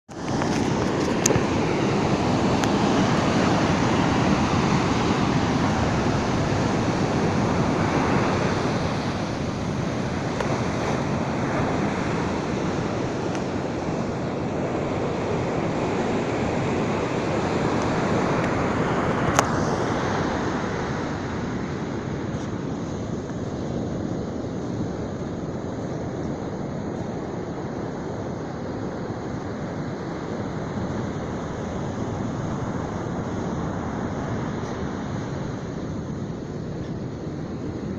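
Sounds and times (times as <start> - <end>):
surf breaking on beach: 0.1 - 26.2
storm wind buffeting microphone: 0.1 - 37.9.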